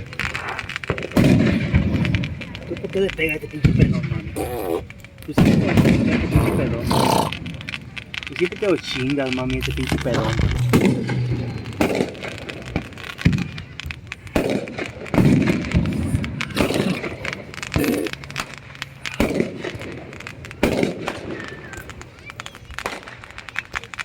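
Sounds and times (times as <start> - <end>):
fireworks bangs and pops: 0.0 - 24.0
small crackling pops: 0.0 - 24.0.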